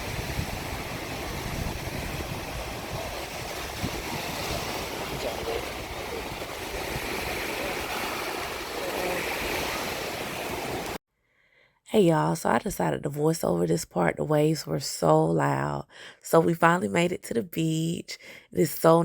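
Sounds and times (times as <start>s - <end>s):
surf breaking on beach: 0.0s - 11.0s
wind buffeting microphone: 0.0s - 11.0s.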